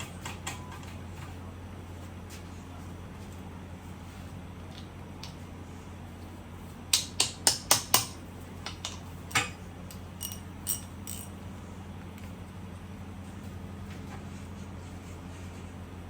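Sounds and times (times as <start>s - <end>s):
steady low hum: 0.0s - 16.0s
metal tools clicking on engine: 7.0s - 11.4s.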